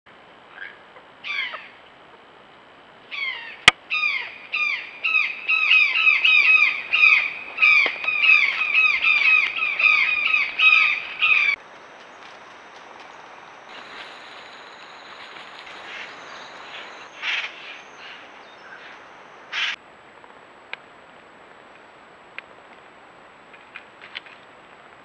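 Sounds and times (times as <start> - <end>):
bird squawking: 0.5 - 1.8, 3.1 - 11.6, 15.2 - 19.8.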